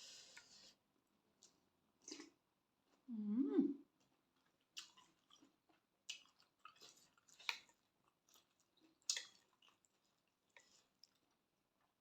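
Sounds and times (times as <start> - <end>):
chewing mouth sounds: 4.4 - 11.4.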